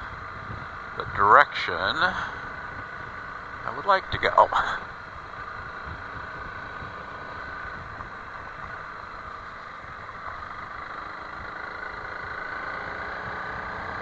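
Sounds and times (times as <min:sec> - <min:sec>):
single-cylinder engine running: 0:00.0 - 0:14.0.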